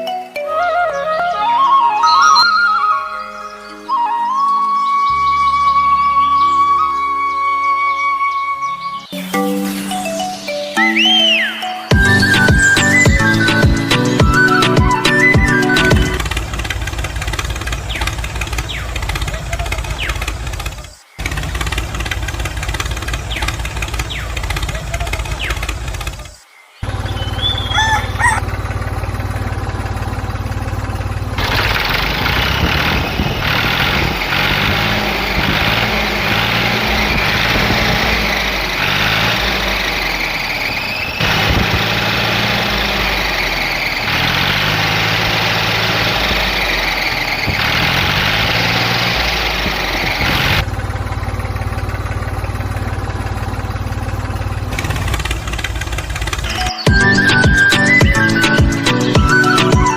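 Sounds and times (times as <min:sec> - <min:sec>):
high whining: 0:00.0 - 0:59.9
engine running steadily: 0:11.9 - 0:59.9.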